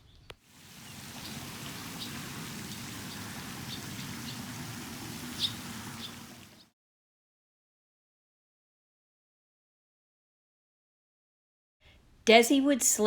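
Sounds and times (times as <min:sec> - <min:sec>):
bird chirping: 0:00.0 - 0:06.7.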